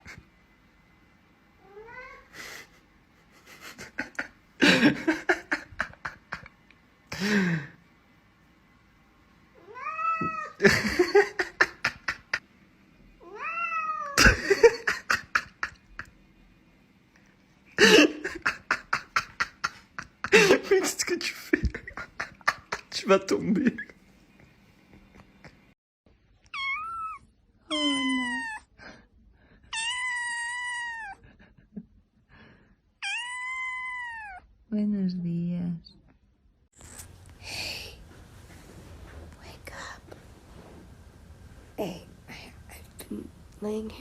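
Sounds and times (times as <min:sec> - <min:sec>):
rapid pulsing laughter: 0:02.4 - 0:06.6, 0:10.6 - 0:12.4, 0:14.2 - 0:16.1, 0:17.8 - 0:23.0
cats meowing: 0:09.6 - 0:10.6, 0:13.2 - 0:14.2, 0:26.4 - 0:28.7, 0:29.7 - 0:31.2, 0:33.0 - 0:34.4.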